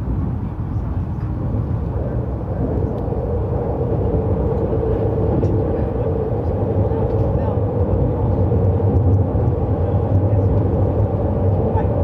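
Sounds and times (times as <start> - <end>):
mid-pitched hum: 0.0 - 12.0
train wheels rumbling on track: 0.0 - 12.0.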